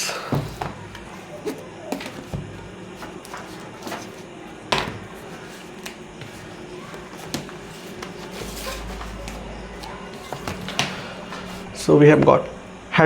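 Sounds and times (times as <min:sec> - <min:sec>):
books knocking and rustling: 0:00.1 - 0:11.9
book thump: 0:04.7 - 0:05.2, 0:05.8 - 0:11.6.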